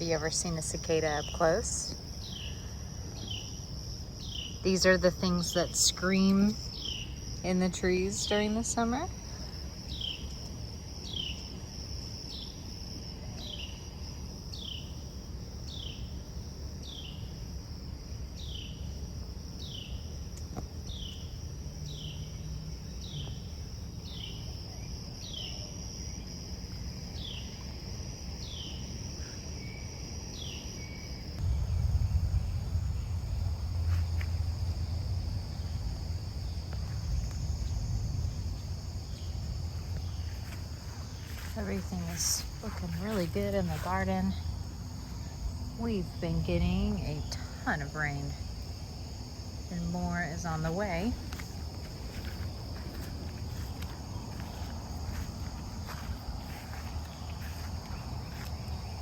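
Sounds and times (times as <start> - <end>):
insects buzzing: 0.0 - 59.0
low rumble: 31.3 - 41.8.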